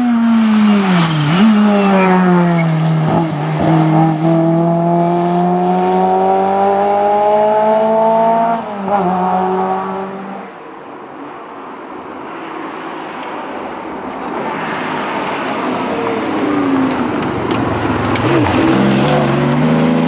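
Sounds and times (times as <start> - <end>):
rally car engine revving hard: 0.0 - 10.4, 16.1 - 20.0.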